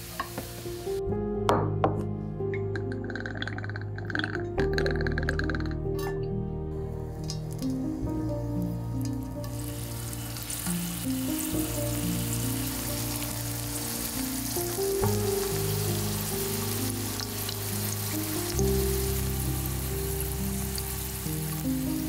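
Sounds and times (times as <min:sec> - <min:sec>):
garlic sizzling in oil: 0:00.0 - 0:01.0, 0:07.2 - 0:22.0
background music: 0:00.0 - 0:22.0.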